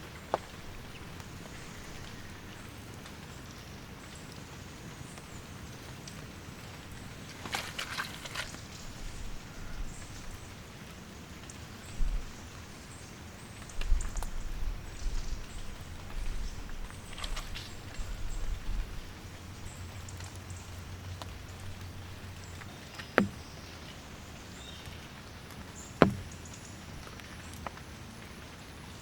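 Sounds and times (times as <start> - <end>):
rain falling: 0.0 - 29.0
low thumps: 23.0 - 23.8, 26.0 - 26.5.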